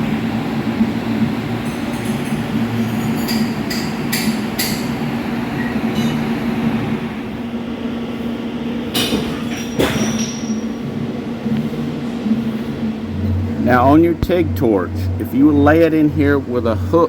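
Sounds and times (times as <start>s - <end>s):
low electrical hum: 0.0s - 17.0s
ringing metallic clinks: 1.6s - 5.0s, 5.9s - 6.3s, 9.3s - 10.8s.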